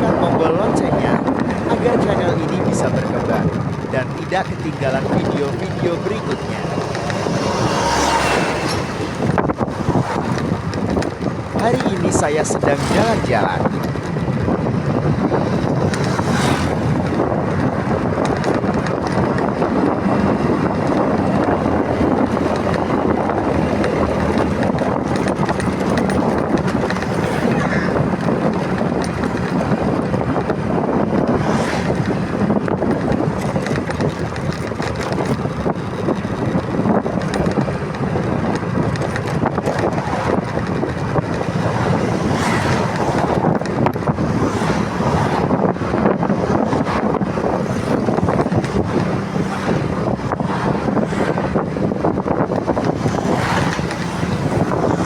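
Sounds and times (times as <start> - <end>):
motorcycle engine hum: 0.0 - 55.0
wind rushing over microphone: 0.0 - 55.0.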